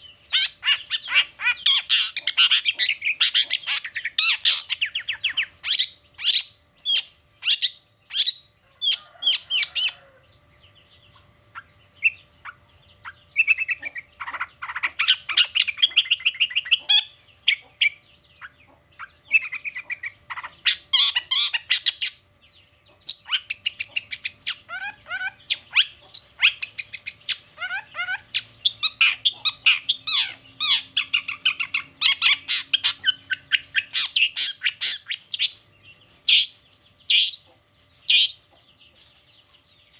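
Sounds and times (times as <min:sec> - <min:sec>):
shrike chattering and trilling: 0:00.0 - 0:10.0, 0:11.5 - 0:22.2, 0:22.9 - 0:38.4.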